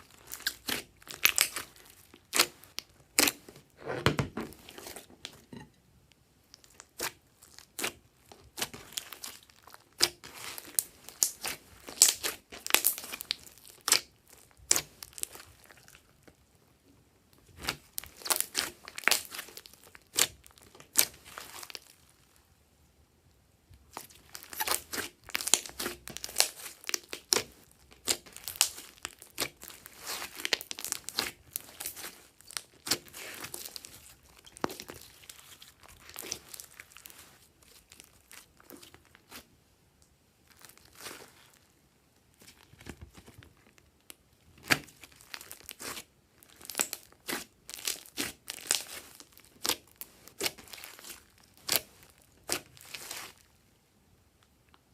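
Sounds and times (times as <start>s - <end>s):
slime squished by hand: 0.0s - 3.5s, 6.4s - 16.1s, 17.6s - 21.9s, 23.9s - 39.5s, 40.4s - 41.6s, 44.6s - 53.5s.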